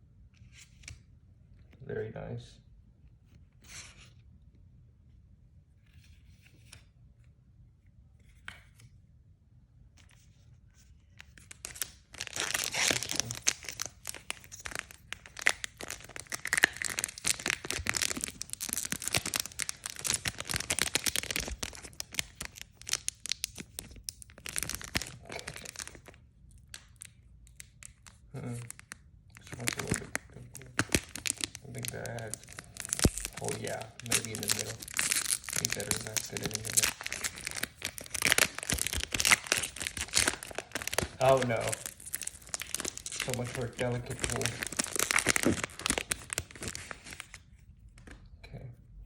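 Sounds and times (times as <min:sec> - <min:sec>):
plastic wrapper crinkling: 0:10.9 - 0:47.4.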